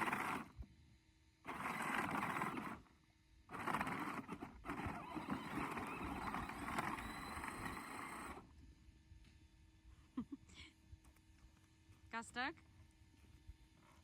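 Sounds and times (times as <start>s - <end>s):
toy tractor motor whirring: 0.0s - 0.6s, 1.4s - 8.5s.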